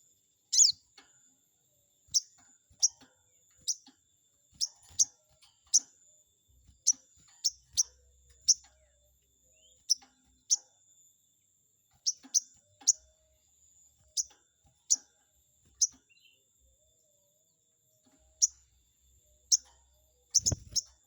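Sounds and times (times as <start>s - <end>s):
bird giving sharp high chirps: 0.5s - 0.8s, 20.3s - 20.9s.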